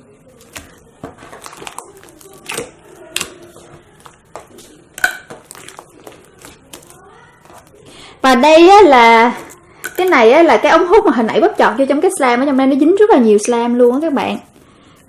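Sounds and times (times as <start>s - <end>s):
slime popping and crackling: 0.3s - 12.2s.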